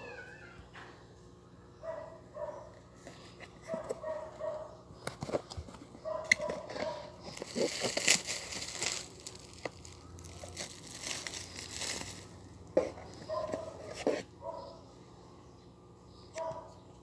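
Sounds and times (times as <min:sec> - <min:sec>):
packaging rustling: 0:05.4 - 0:13.7
packaging clicks: 0:06.3 - 0:12.4
packaging crinkling and tearing: 0:06.3 - 0:13.6.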